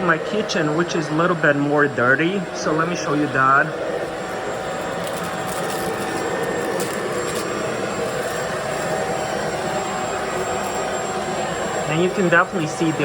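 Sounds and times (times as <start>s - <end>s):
cordless vacuum running: 0.0s - 13.0s.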